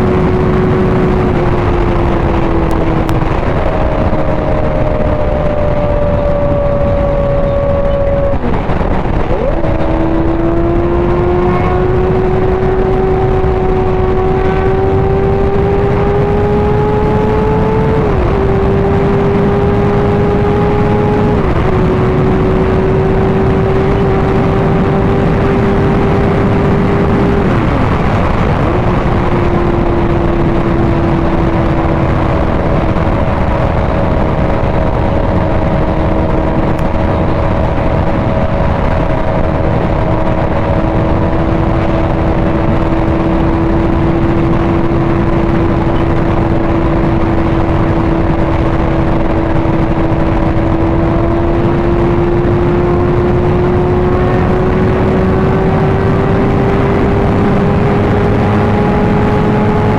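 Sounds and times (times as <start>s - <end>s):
motorcycle engine: 0.0s - 59.9s
wind and road noise: 0.0s - 59.9s.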